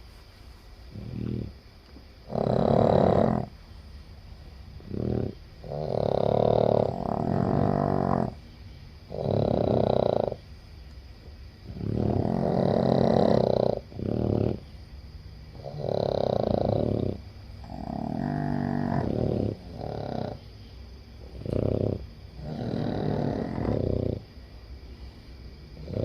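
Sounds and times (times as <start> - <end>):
dog snoring loudly: 0.9 - 1.6, 2.2 - 3.6, 4.8 - 8.4, 9.1 - 10.5, 11.6 - 14.8, 15.5 - 20.5, 21.2 - 24.3, 25.7 - 26.0.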